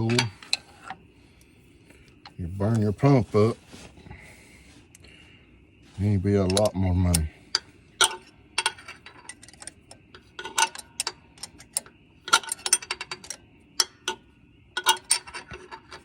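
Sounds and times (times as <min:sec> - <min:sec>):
hand tools clinking on metal: 0:00.0 - 0:00.7.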